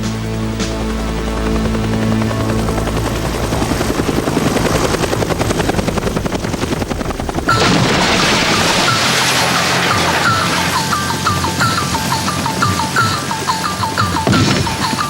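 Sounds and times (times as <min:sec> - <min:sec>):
helicopter rotor chopping: 0:00.0 - 0:15.0
high chirping tones: 0:07.5 - 0:15.0.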